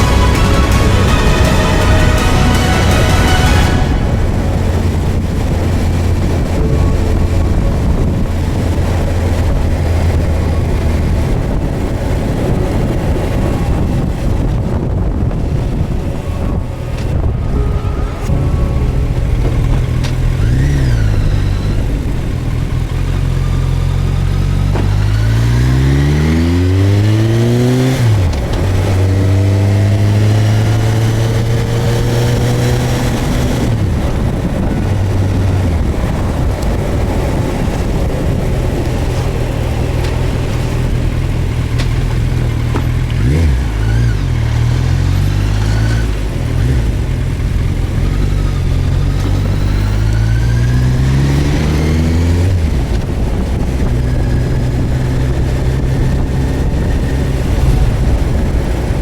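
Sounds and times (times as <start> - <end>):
motorcycle engine running: 0.0 - 45.4.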